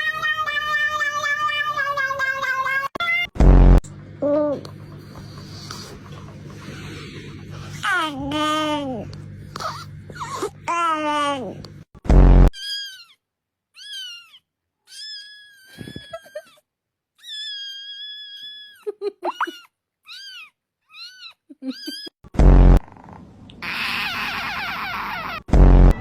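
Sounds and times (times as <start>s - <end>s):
cat meowing: 0.0s - 3.3s
loud short deep blast: 22.4s - 22.8s.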